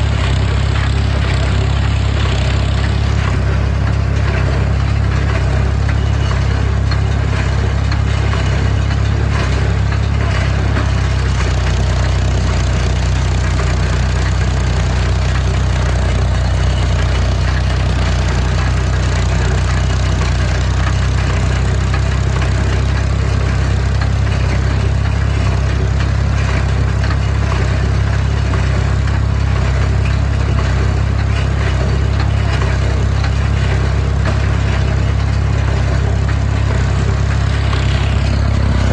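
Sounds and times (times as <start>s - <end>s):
heavy machinery engine hum: 0.0s - 38.9s.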